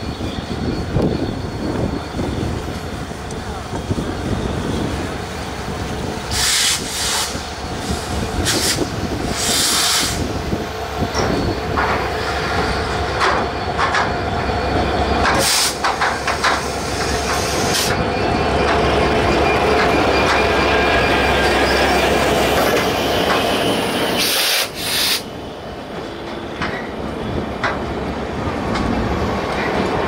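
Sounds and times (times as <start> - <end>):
train wheels rumbling on track: 0.0 - 30.0
short sharp hisses: 24.2 - 25.3.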